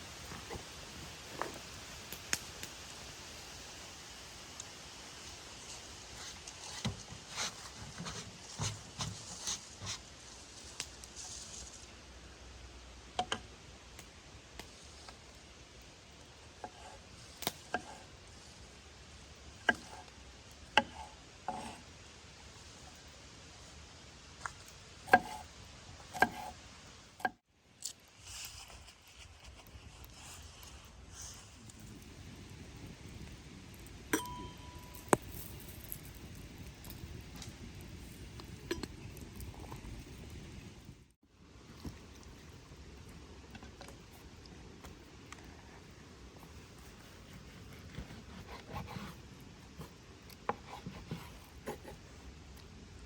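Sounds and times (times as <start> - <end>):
faint steady hiss: 0.0 - 53.0
low steady background noise: 0.0 - 53.0
thin ringing tone: 34.1 - 35.2.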